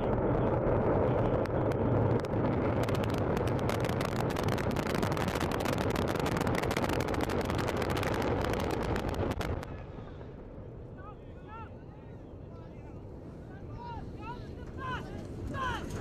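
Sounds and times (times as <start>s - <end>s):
rocket engine crackling: 0.0s - 11.5s
rocket engines rumbling: 0.0s - 16.0s.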